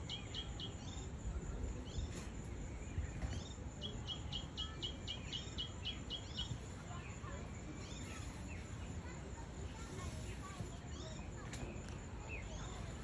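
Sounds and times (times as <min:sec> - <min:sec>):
bird chirping: 0:00.0 - 0:01.1, 0:02.8 - 0:09.0.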